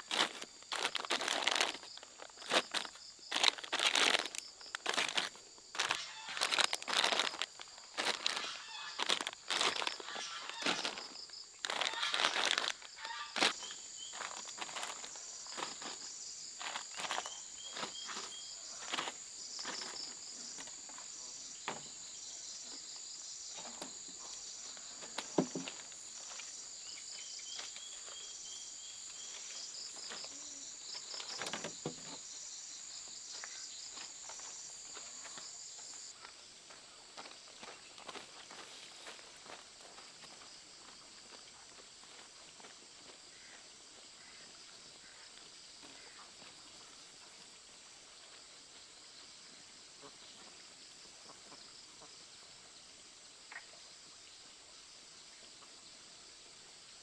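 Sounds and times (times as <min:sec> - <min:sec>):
rustling handling noise: 0:00.0 - 0:20.7
insects droning: 0:00.0 - 0:57.0.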